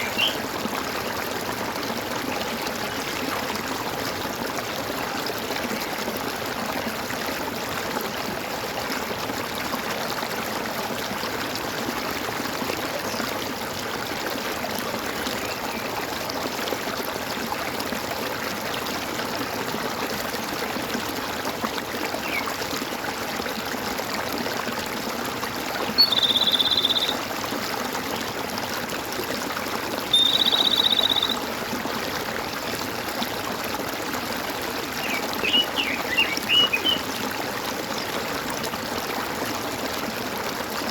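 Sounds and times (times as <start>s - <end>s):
high buzzy trilled calls: 0.0s - 0.4s, 26.0s - 27.2s, 30.1s - 31.5s
stream water gurgling: 0.0s - 40.9s
short chirps: 30.2s - 31.4s.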